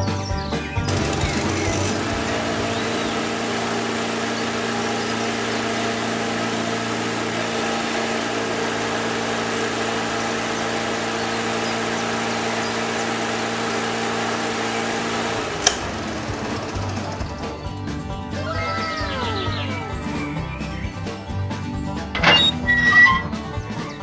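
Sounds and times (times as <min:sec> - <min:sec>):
motor humming steadily: 0:00.8 - 0:18.4, 0:22.2 - 0:23.3.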